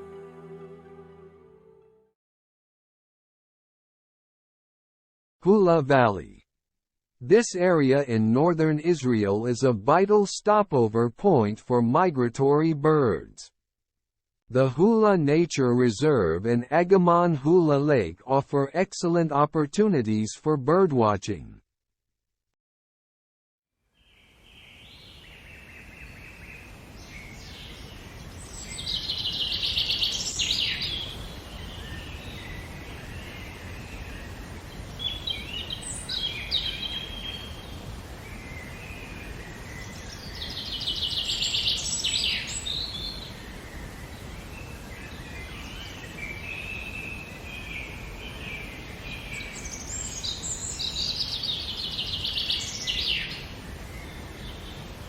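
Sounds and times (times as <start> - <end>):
birds singing trilled song: 24.0 - 55.0
birds chirping: 24.1 - 55.0.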